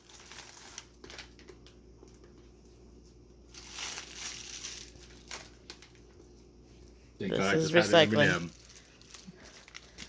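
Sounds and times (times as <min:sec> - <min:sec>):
plastic packaging crinkling: 0:00.0 - 0:02.5, 0:03.4 - 0:06.3, 0:08.1 - 0:10.0.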